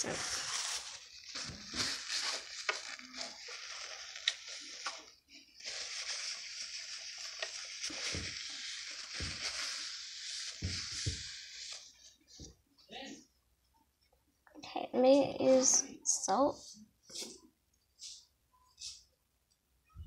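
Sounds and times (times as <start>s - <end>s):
toilet paper rustling and crumpling: 0.0s - 12.5s.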